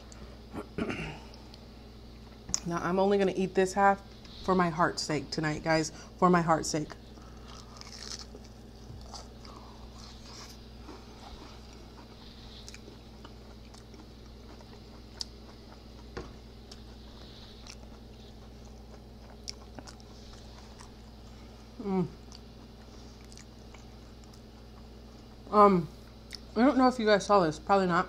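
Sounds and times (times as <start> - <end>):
crunchy chewing: 7.0 - 26.6.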